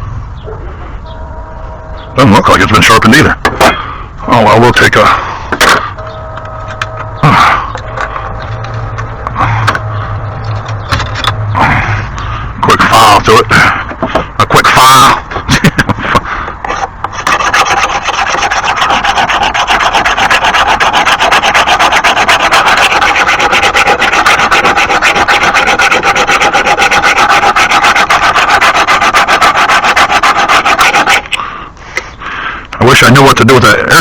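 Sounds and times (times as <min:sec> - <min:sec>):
hand file on steel blade: 0:17.2 - 0:31.4.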